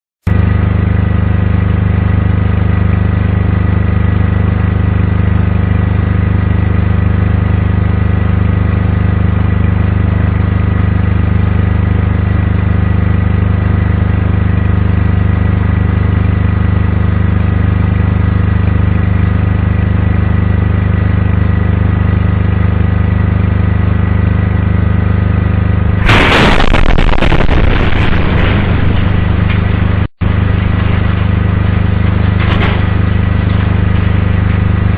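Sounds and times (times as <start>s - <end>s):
loud low hum: 0.3s - 34.9s
sudden blast with crackling hiss: 26.0s - 34.9s.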